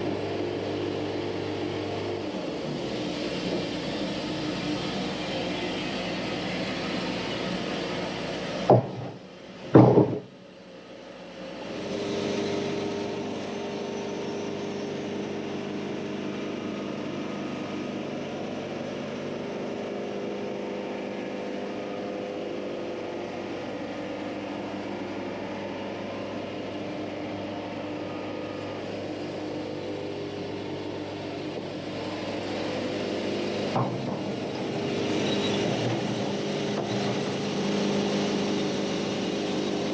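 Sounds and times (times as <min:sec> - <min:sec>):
diesel engine running: 0:00.0 - 0:39.9
loud knocks: 0:08.7 - 0:10.3, 0:33.7 - 0:34.4.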